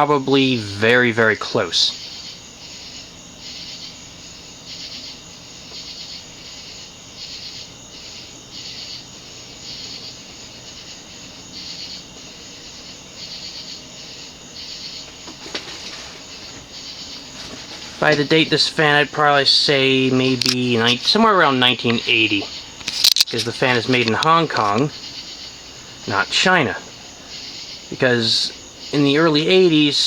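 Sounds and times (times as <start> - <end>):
insects chirping: 0.0 - 30.0.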